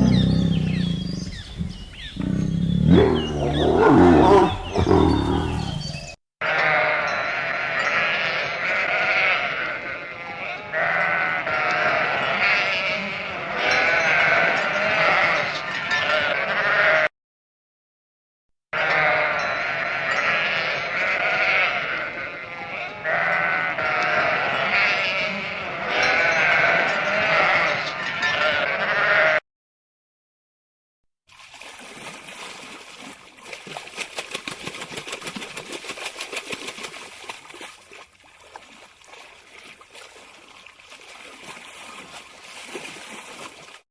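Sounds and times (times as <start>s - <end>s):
sheep bleating: 6.4s - 17.1s, 18.8s - 29.4s.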